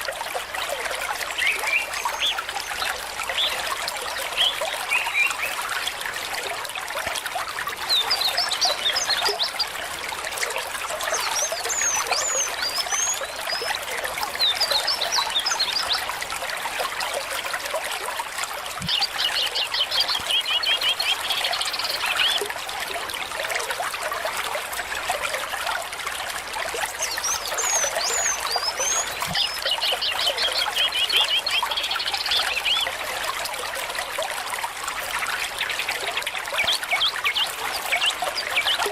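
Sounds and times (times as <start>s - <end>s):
stream trickling and babbling: 0.0s - 38.9s
songbird chirping and trilling: 26.9s - 33.0s.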